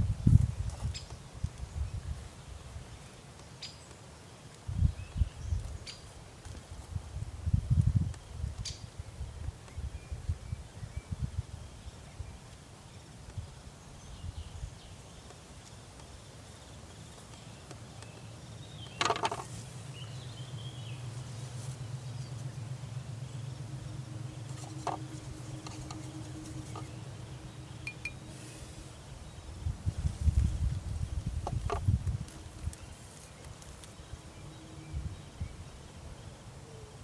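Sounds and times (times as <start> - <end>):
low hum: 19.3 - 32.8
faint high chirps: 23.8 - 28.6.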